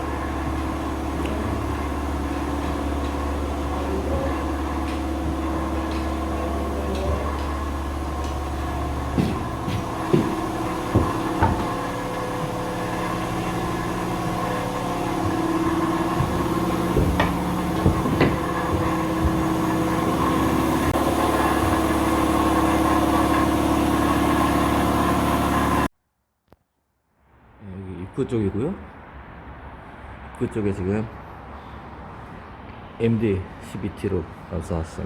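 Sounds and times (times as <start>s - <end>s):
motor hum: 0.0s - 25.9s
sharp knocks and clicks: 6.9s - 12.6s, 15.1s - 21.0s.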